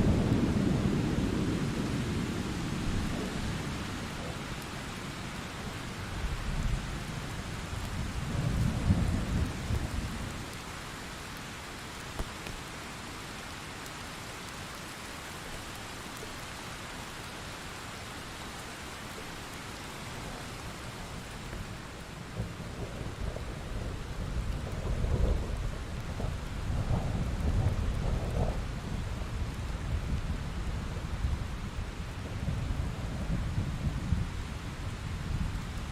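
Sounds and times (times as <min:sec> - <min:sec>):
heavy rain: 0:00.0 - 0:35.9
rolling thunder: 0:22.3 - 0:35.6.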